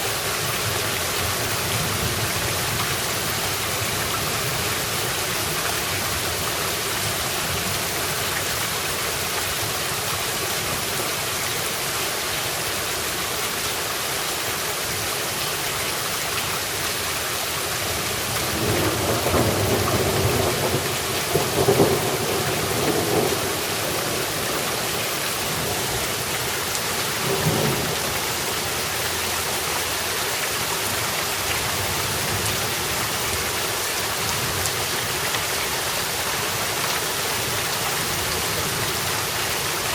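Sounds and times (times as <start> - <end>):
heavy rain falling: 0.0 - 39.9
thunder rumbling: 18.6 - 26.2.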